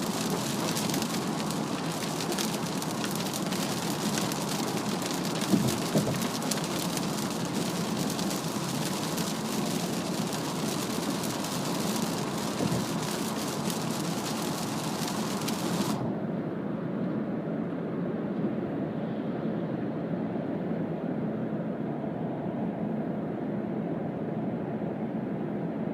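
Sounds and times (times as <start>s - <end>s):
heavy rain on car roof: 0.0s - 16.1s
tyre and road noise: 0.0s - 16.1s.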